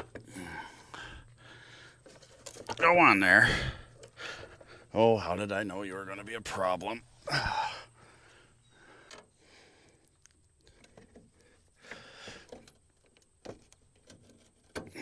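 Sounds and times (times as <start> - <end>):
plastic clicks and rustles: 2.0 - 2.8.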